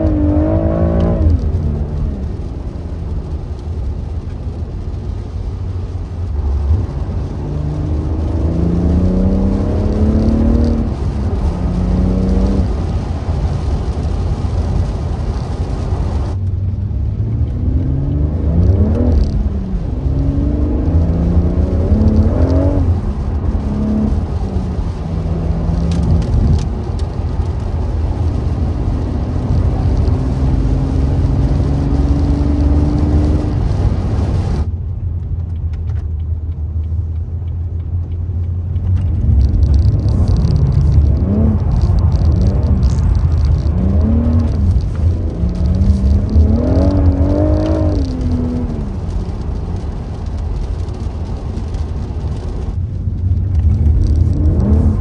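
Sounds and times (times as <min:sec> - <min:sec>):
engine revving: 0:00.0 - 0:02.1, 0:06.8 - 0:13.0, 0:17.2 - 0:26.7, 0:28.6 - 0:34.7, 0:39.1 - 0:49.1, 0:53.6 - 0:55.0
car engine rumbling: 0:00.0 - 0:55.0.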